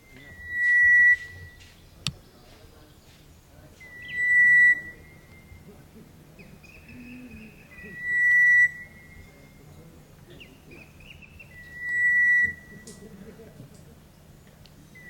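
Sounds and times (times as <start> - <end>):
bird whistling: 0.1 - 1.8, 3.8 - 5.7, 6.4 - 9.6, 10.4 - 13.0.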